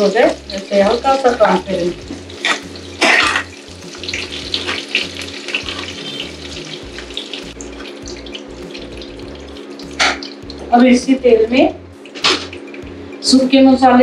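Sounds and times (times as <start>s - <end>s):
onions sizzling in oil: 0.0s - 14.0s
spoon scraping a pan: 2.3s - 3.6s.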